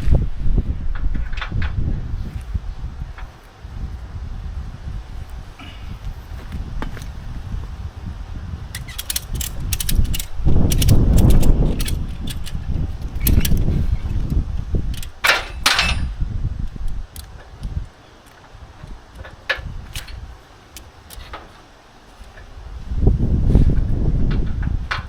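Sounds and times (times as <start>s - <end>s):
metal parts knocking and clinking: 8.7s - 16.2s, 16.8s - 21.6s
sharp clicks: 8.7s - 21.5s.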